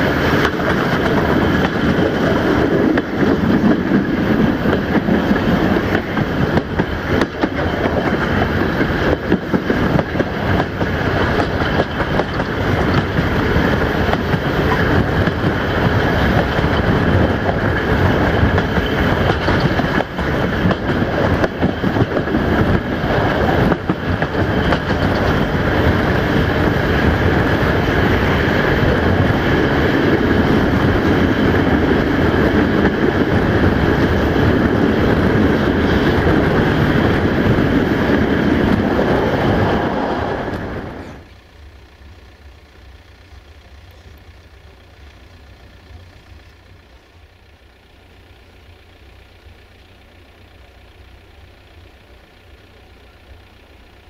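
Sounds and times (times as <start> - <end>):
train wheels rumbling: 0.0 - 54.0
wheels clicking over track: 0.0 - 54.0
rushing air: 25.7 - 41.3.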